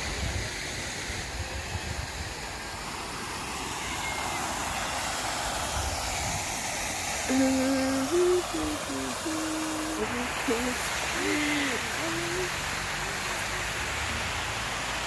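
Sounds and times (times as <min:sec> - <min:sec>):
water fountain splashing: 0:00.0 - 0:15.0
person humming: 0:07.3 - 0:13.3.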